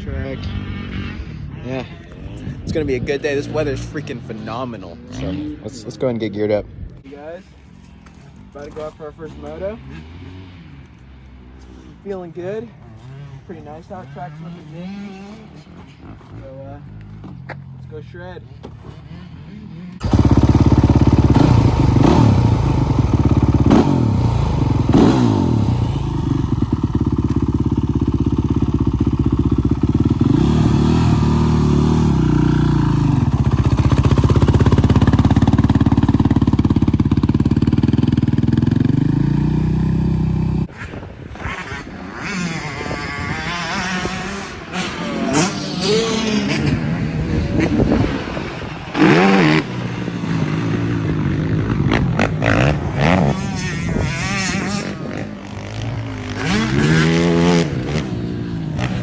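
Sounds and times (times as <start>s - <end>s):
quad engine revving: 19.9s - 40.7s, 41.4s - 59.0s.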